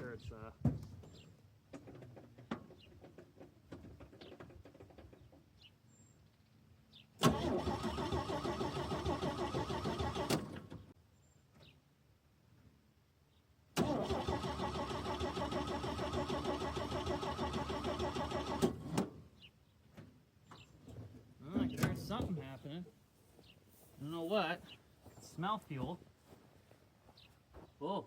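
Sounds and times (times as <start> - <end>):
starter motor cranking engine: 7.2 - 10.9, 13.8 - 19.2.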